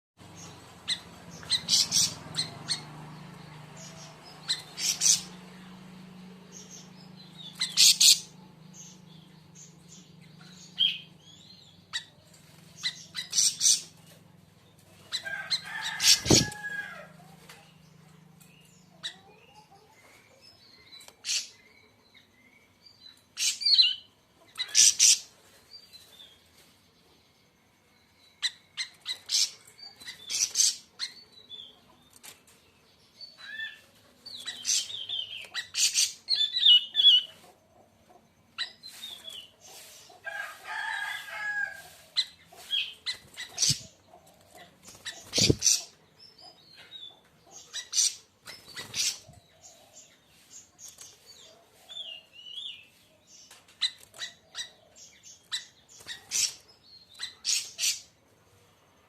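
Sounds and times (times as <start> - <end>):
bird chattering and whistling: 45.0 - 46.0.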